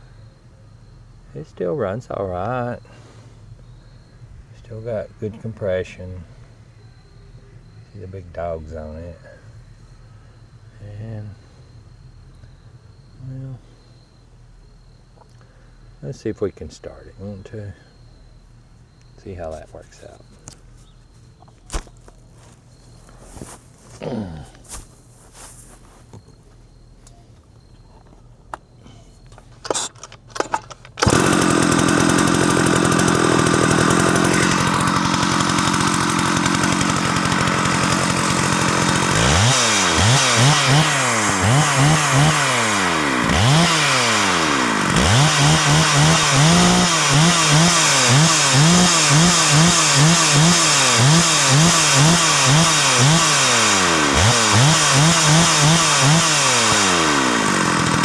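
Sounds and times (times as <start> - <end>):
chainsaw pull-start: 29.6 - 58.0
chainsaw idling and revving: 31.0 - 58.0.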